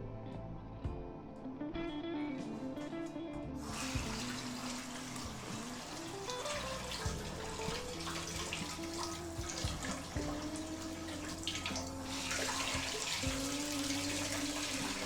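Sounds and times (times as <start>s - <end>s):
background music with held notes: 0.0s - 15.0s
tap water running: 3.6s - 15.0s.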